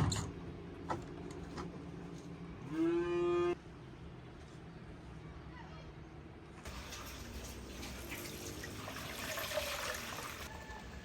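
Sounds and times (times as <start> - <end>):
cow mooing: 2.6 - 3.6.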